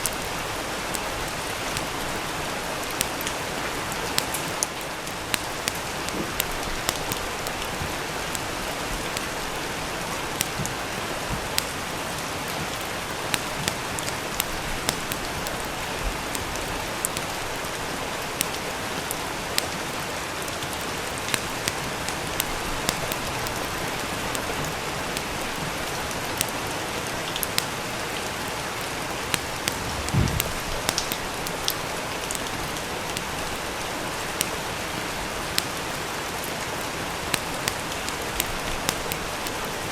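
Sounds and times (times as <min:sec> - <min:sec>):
steady rain: 0:00.0 - 0:39.9
wood fire crackling: 0:00.0 - 0:39.9
low thump: 0:29.8 - 0:30.8.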